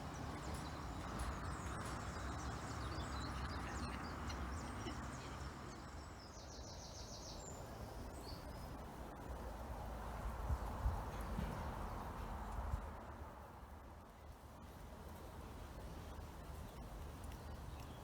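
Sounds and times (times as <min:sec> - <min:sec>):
birds chirping: 0:00.0 - 0:08.9, 0:15.6 - 0:18.0.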